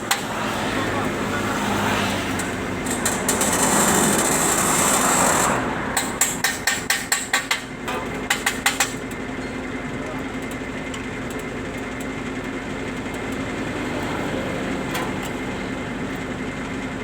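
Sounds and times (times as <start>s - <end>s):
vehicle passing: 0.0s - 6.2s, 13.4s - 15.9s
hammer strikes: 6.0s - 8.9s.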